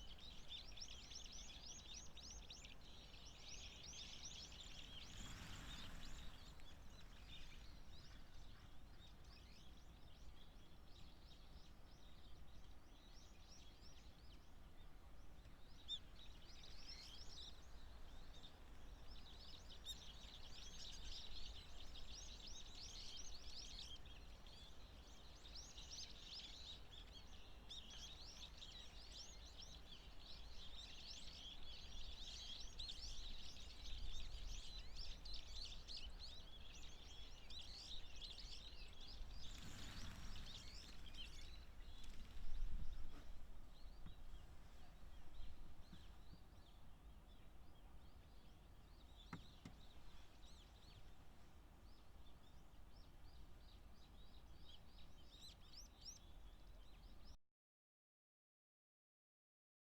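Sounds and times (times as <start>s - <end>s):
birds trilling calls: 38.9s - 43.1s.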